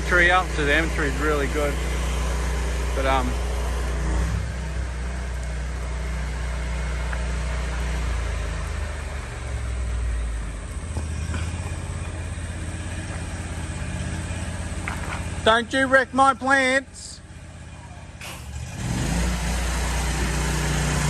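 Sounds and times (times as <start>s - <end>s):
water spray hissing: 0.0s - 4.4s, 18.2s - 21.0s
pressure washer engine hum: 0.0s - 16.8s, 17.4s - 21.0s.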